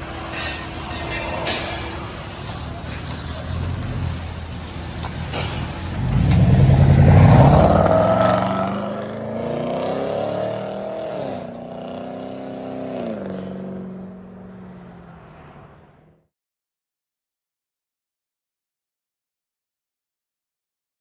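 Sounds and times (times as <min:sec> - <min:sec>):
truck engine revving: 0:00.0 - 0:15.6.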